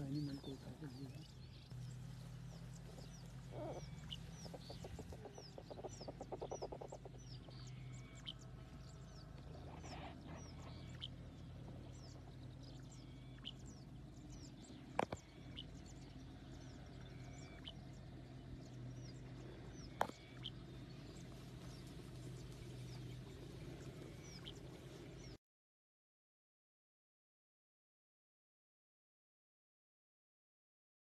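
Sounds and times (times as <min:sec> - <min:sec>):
low steady hum: 0:00.0 - 0:25.4
small birds chirping: 0:00.0 - 0:25.4.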